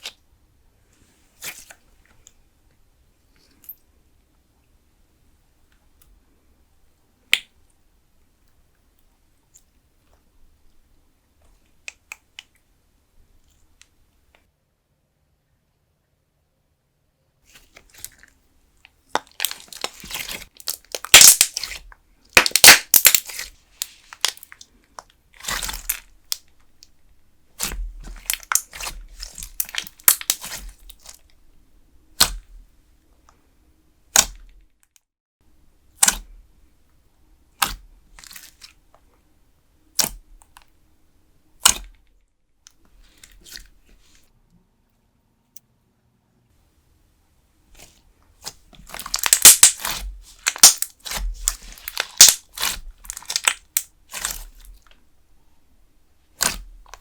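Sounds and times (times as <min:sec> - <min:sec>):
slime crackling and tearing: 0:19.1 - 0:24.6, 0:25.4 - 0:26.5, 0:27.6 - 0:31.2, 0:47.8 - 0:55.0, 0:56.4 - 0:57.0
air popping from slime: 0:20.9 - 0:21.8, 0:22.4 - 0:24.4, 0:48.9 - 0:54.7, 0:56.4 - 0:57.0.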